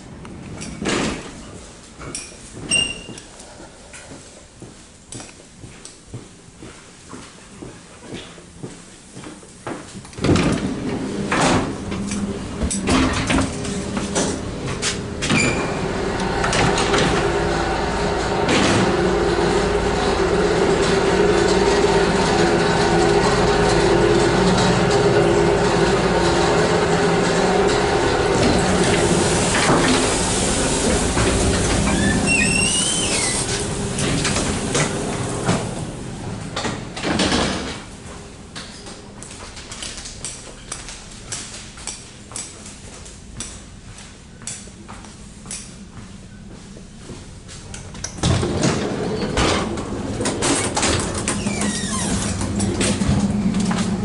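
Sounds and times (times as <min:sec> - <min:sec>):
train rumble and clatter: 0:00.0 - 0:54.0
sliding door opening: 0:10.2 - 0:37.8, 0:48.2 - 0:54.0
high wavering squeal: 0:31.9 - 0:33.5.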